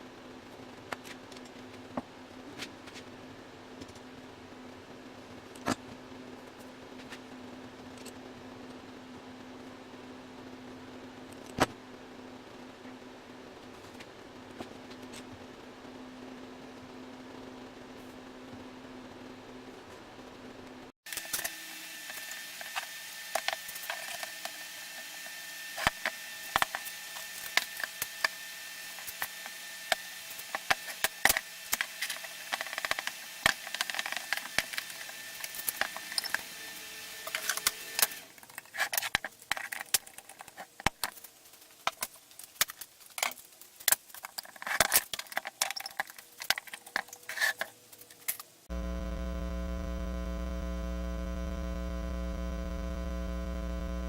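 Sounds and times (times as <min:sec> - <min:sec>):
loud electrical mains hum: 0:00.0 - 0:42.8, 0:47.8 - 0:54.0
small hard objects clattering: 0:38.3 - 0:48.5
steady hum: 0:48.7 - 0:54.0.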